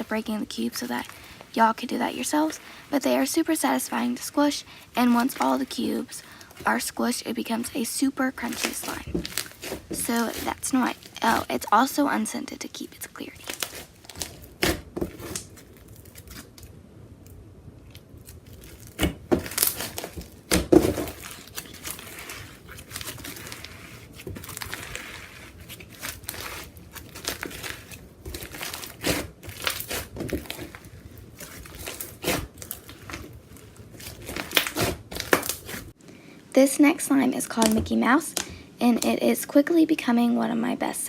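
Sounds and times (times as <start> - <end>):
slime squished by hand: 8.3 - 11.5, 17.9 - 35.9.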